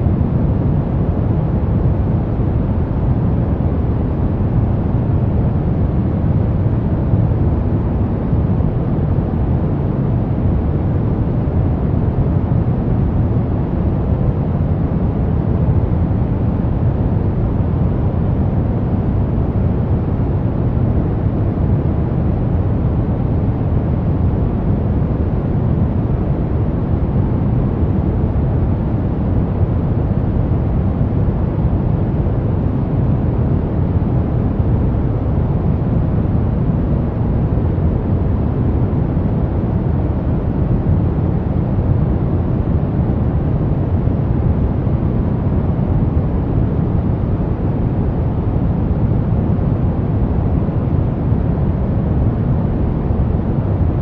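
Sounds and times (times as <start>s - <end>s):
brown noise hiss: 0.0s - 54.0s.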